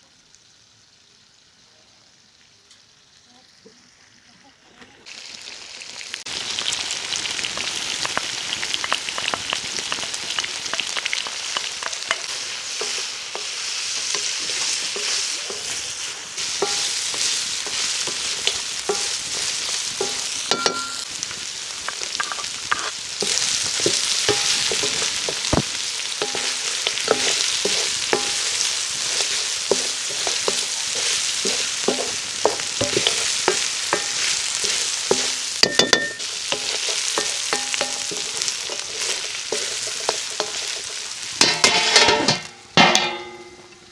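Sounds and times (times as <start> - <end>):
food sizzling in a pot: 0.0 - 43.9
spoon scraping and knocking a pot: 11.6 - 15.8, 16.4 - 21.1, 21.8 - 43.6.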